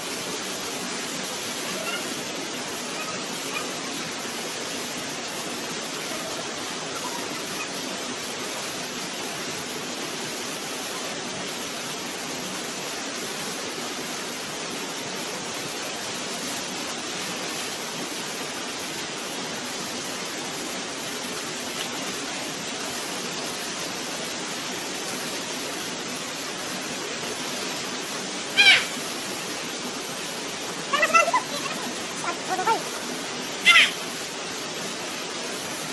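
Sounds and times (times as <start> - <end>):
waterfall rushing: 0.0 - 35.9
loud cry: 28.6 - 29.0, 30.9 - 34.0.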